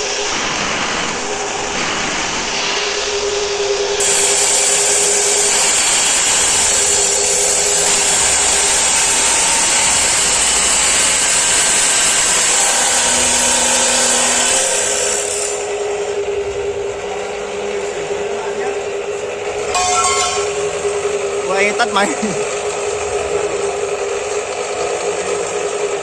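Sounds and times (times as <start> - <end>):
cut-off saw motor hum: 4.0 - 16.1
disc grinding steel: 4.0 - 16.4, 19.2 - 24.5.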